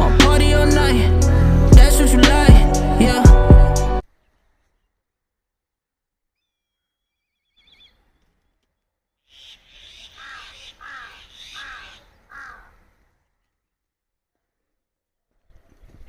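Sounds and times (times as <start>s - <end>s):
warbling bird call: 9.3s - 12.8s
crow cawing: 9.3s - 12.9s.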